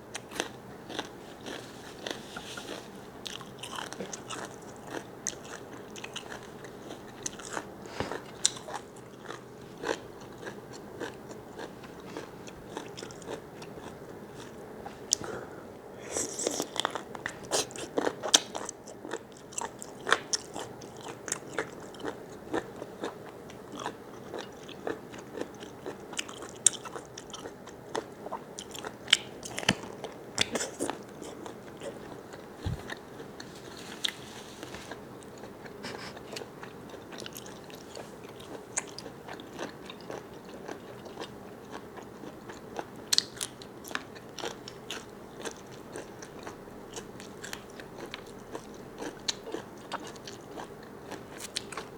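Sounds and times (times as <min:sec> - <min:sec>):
person chewing and biting: 0:00.1 - 0:14.6.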